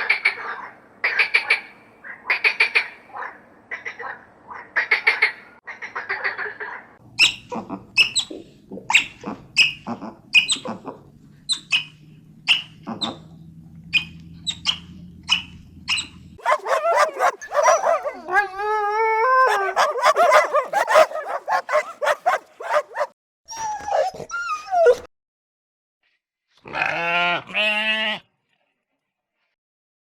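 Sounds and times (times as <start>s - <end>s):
animal yelps and whines: 16.4s - 25.0s.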